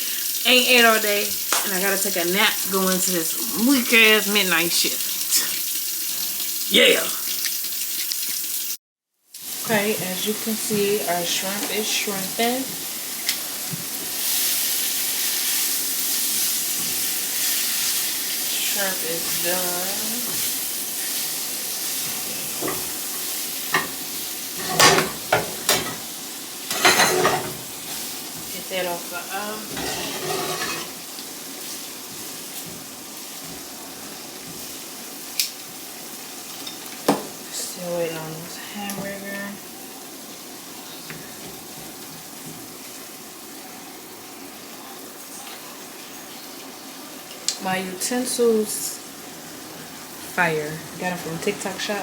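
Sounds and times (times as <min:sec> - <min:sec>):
shrimp sizzling in a frying pan: 0:00.0 - 0:52.0
utensil scraping and clinking on pan: 0:24.6 - 0:26.1, 0:26.7 - 0:28.0, 0:29.7 - 0:31.0.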